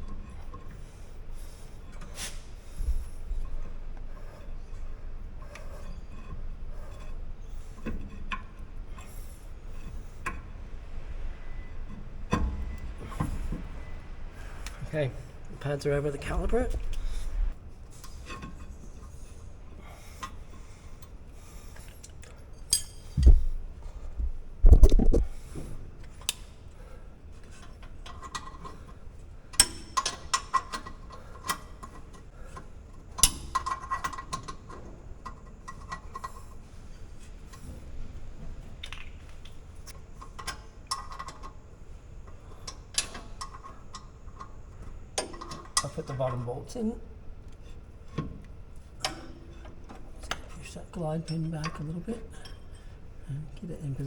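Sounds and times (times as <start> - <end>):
heavy dull knocks: 23.2 - 25.3.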